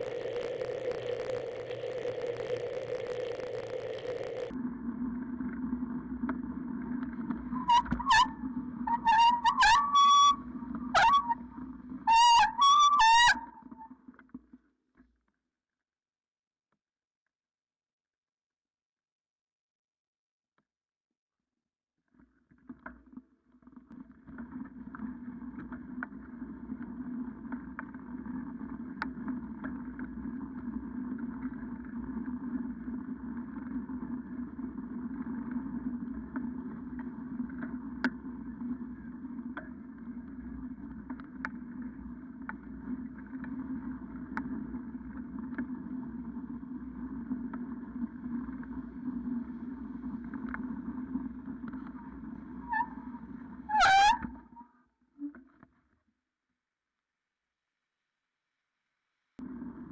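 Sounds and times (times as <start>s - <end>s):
bicycle rushing and rumbling: 0.0s - 4.6s.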